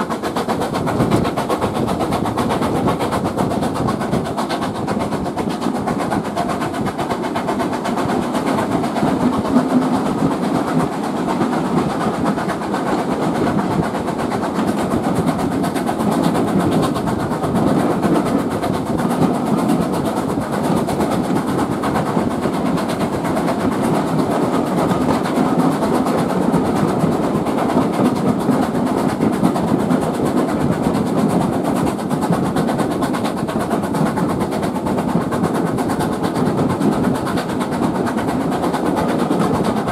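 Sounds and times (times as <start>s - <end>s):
train wheels rolling on rail: 0.0s - 39.9s.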